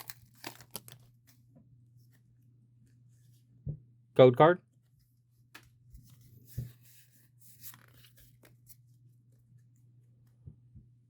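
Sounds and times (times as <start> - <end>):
trading cards rustling and clicking: 0.0 - 1.1, 7.4 - 8.9.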